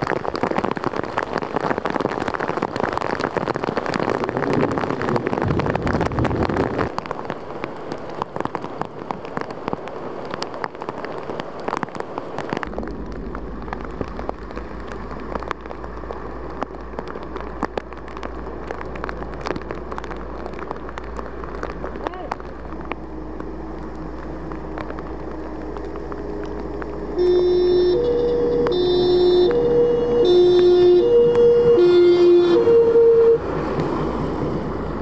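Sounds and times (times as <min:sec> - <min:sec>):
rain on hard surfaces: 0:00.0 - 0:35.0
sharp raindrop hits: 0:00.0 - 0:35.0
low steady hum: 0:12.6 - 0:33.4.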